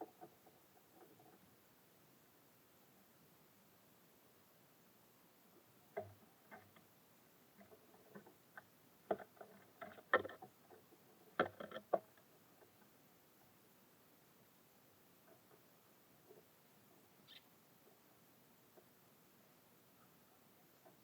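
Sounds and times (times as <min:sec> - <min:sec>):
birds pecking at feeder: 0:05.9 - 0:13.6.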